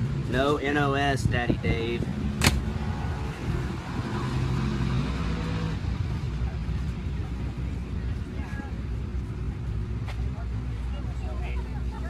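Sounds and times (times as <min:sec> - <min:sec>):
vehicle engine low rumble: 0:00.0 - 0:12.0
sharp click: 0:02.4 - 0:02.7.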